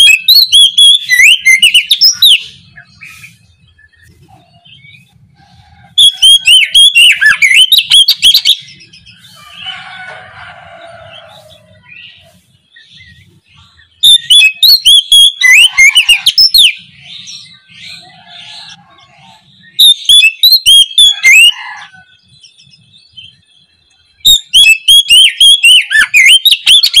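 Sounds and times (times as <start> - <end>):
bird singing whistled phrases: 0.0 - 5.1, 6.0 - 9.6, 14.0 - 16.8, 19.6 - 21.5, 24.2 - 27.0
bird chattering notes: 0.0 - 9.8, 11.0 - 21.5, 24.2 - 27.0.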